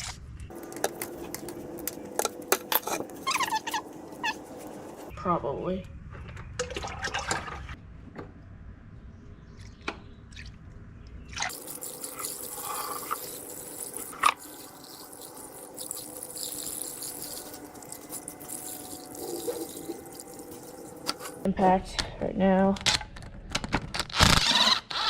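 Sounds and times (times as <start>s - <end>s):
liquid dripping and trickling: 11.4s - 21.5s.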